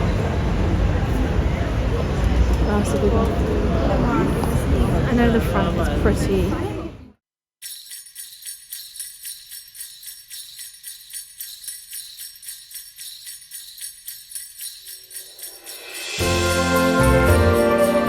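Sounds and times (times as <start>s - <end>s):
sleigh bells shaken rhythmically: 7.6s - 18.0s.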